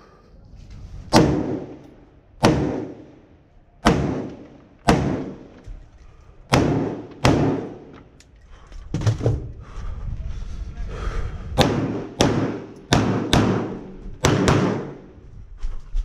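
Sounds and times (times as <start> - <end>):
gunshots with echo: 1.1 - 1.8, 2.4 - 3.2, 3.8 - 5.6, 6.5 - 8.0, 11.6 - 15.1.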